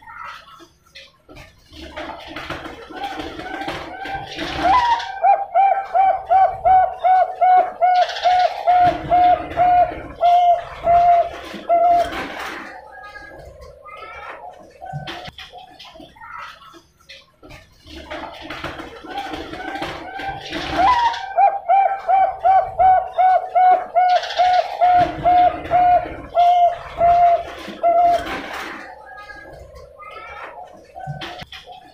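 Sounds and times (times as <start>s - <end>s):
dove cooing: 2.9s - 14.2s, 19.1s - 31.8s.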